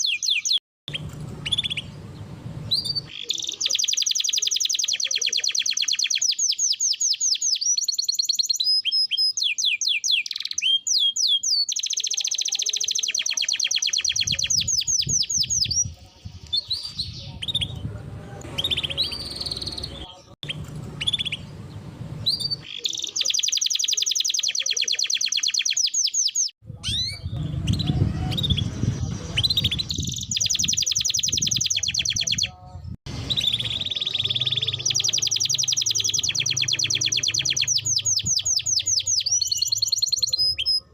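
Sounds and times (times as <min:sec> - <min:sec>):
canary singing trills: 0:00.0 - 0:40.9
low rumbling background: 0:20.6 - 0:22.6.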